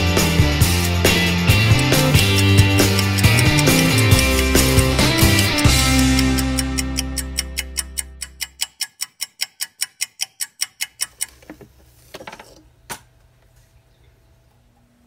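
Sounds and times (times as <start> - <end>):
rock music: 0.0 - 8.2
fast clock-like ticking: 0.6 - 11.5.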